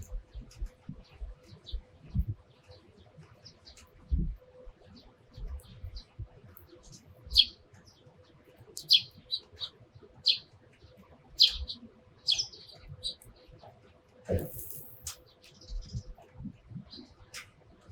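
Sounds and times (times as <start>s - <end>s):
sparrows chirping: 0.0s - 13.7s, 14.3s - 16.2s
faint low thumps: 4.1s - 4.4s.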